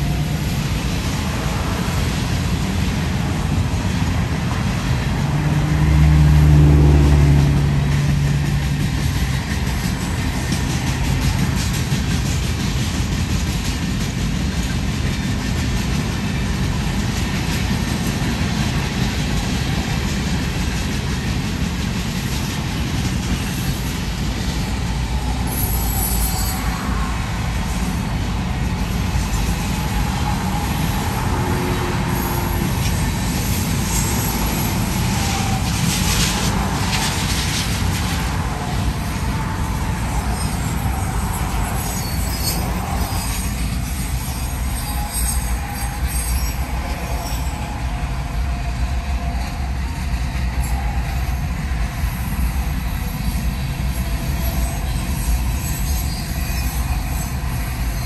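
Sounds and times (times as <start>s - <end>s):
train wheels rumbling on track: 0.0s - 58.0s
wheel squeals: 25.2s - 27.2s, 39.0s - 48.5s, 49.3s - 58.0s.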